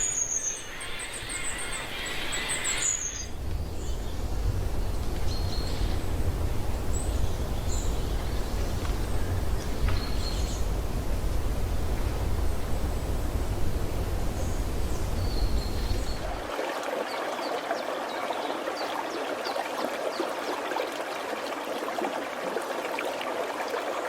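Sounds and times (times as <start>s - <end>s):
steady low rumble: 3.3s - 16.4s.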